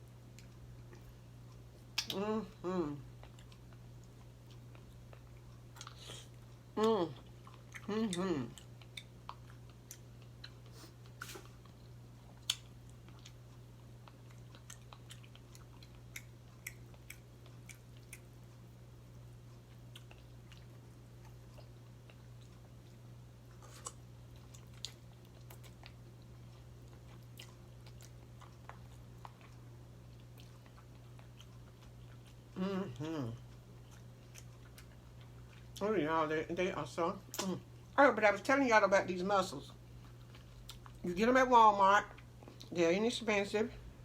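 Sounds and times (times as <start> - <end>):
chewing and biting: 3.1 - 35.8, 39.7 - 41.1.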